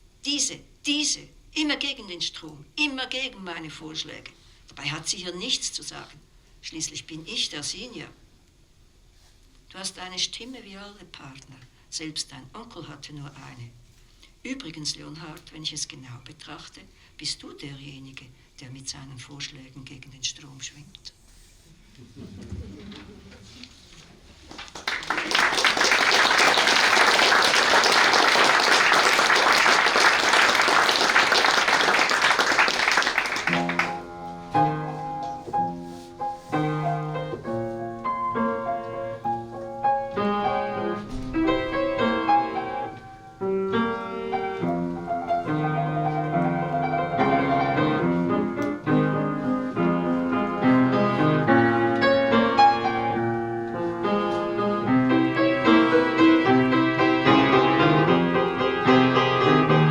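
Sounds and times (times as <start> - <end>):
audience applauding: 24.5 - 34.0
solo acoustic piano: 24.9 - 59.9.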